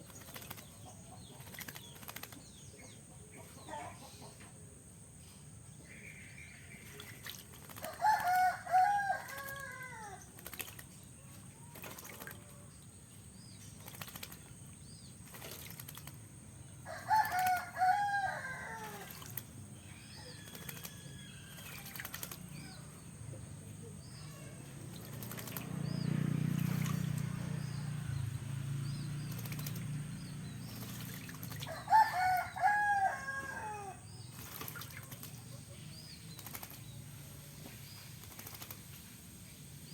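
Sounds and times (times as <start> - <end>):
bird wings fluttering: 0.0 - 2.6, 6.9 - 12.5, 13.7 - 14.6, 15.2 - 16.3, 17.1 - 18.0, 18.8 - 19.6, 20.4 - 22.7, 24.9 - 27.4, 29.2 - 32.6, 34.2 - 37.0, 37.6 - 39.2
rooster crowing: 7.9 - 10.2, 16.8 - 19.2, 31.6 - 34.1
water splashing: 10.4 - 12.6, 13.7 - 16.3, 18.8 - 19.6, 24.8 - 32.5, 34.3 - 35.6.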